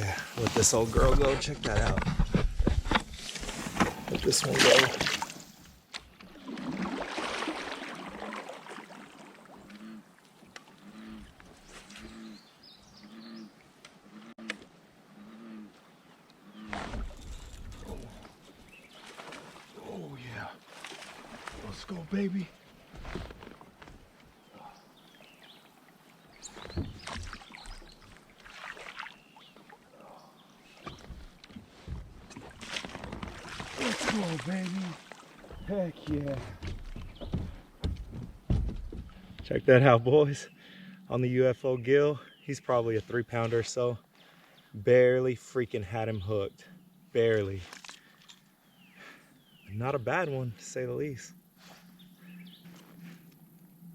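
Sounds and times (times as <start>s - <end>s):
water splashing: 3.2s - 12.3s, 16.7s - 24.1s, 25.2s - 39.6s, 47.2s - 48.4s
short low animal calls: 10.7s - 12.4s.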